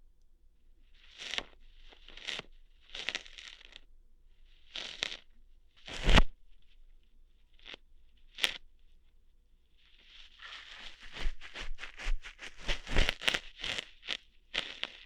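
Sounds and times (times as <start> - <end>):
scratchy rustles: 1.0 - 3.8, 4.6 - 5.2, 9.8 - 15.0.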